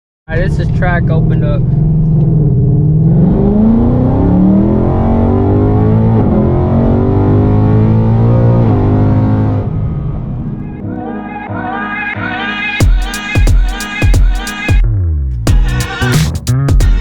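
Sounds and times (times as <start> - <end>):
car engine revving: 0.3 - 10.8.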